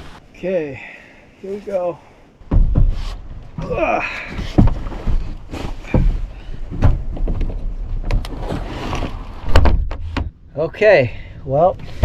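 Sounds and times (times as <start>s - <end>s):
thumps of someone clambering: 2.4s - 8.6s, 9.4s - 10.4s
person grunting: 3.6s - 4.3s.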